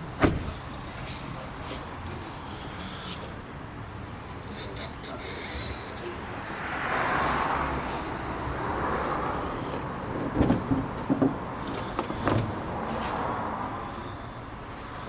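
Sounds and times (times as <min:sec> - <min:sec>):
clunks and knocks: 0:00.2 - 0:00.7, 0:09.7 - 0:13.2
passing traffic hiss: 0:00.5 - 0:10.1.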